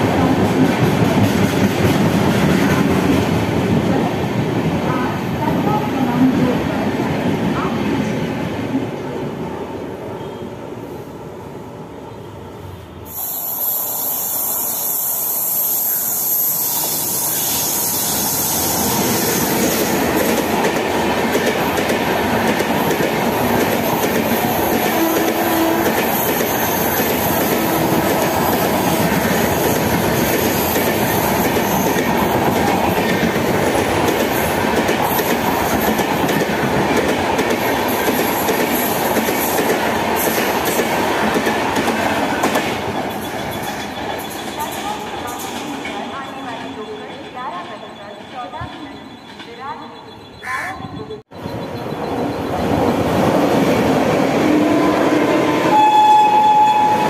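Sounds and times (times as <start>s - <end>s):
train wheels rumbling on rails: 0.0s - 9.6s, 16.0s - 49.9s.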